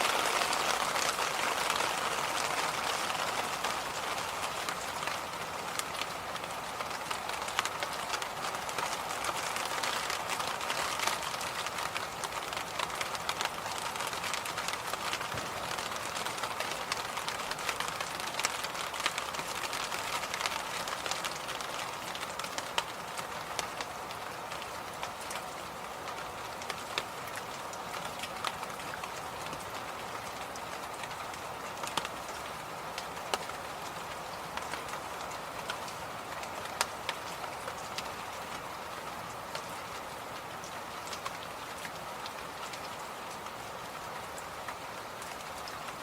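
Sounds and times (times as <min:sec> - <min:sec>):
light irregular ticks: 0:26.1 - 0:46.0.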